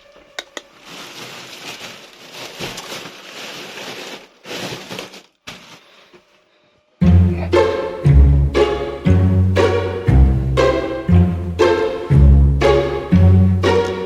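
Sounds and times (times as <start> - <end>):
uneven rustling: 0.0 - 6.3
music with deep bass: 7.0 - 14.0.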